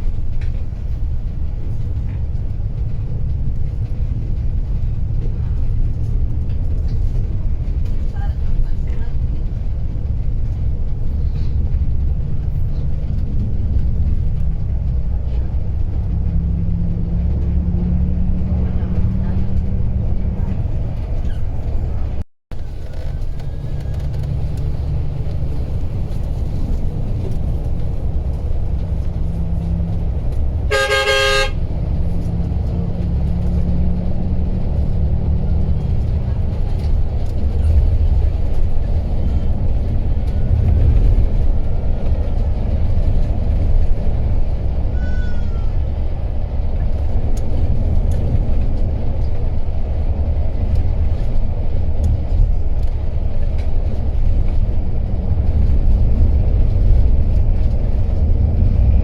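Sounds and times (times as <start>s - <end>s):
horn blast: 30.7s - 31.6s.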